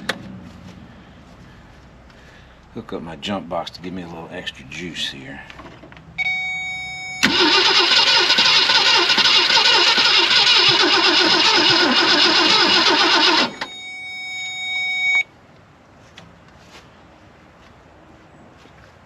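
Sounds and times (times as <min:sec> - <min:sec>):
starter cranking engine: 0:07.2 - 0:13.7.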